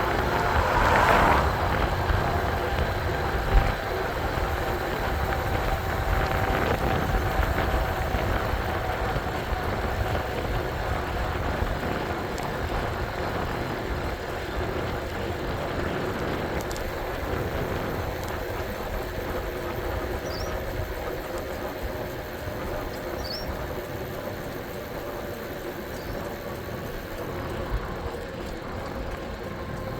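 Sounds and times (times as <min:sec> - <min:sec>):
passing traffic: 0:00.0 - 0:20.0
wind and road noise: 0:00.0 - 0:29.9.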